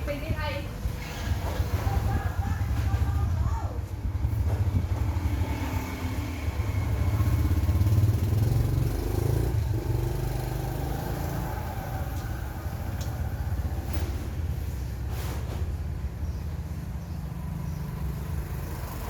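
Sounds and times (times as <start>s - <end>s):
engine running: 0.7s - 19.0s.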